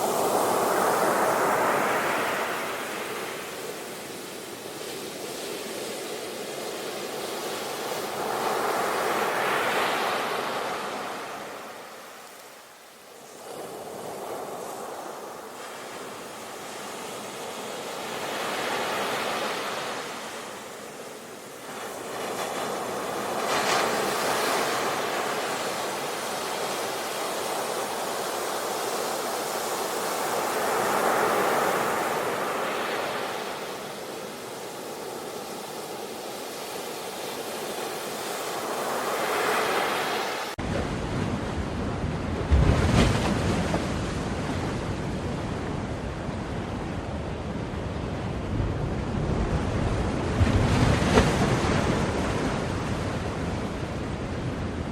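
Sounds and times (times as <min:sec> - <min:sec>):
sea waves washing onto shore: 0:00.0 - 0:46.3
wind on the microphone: 0:40.6 - 0:54.9.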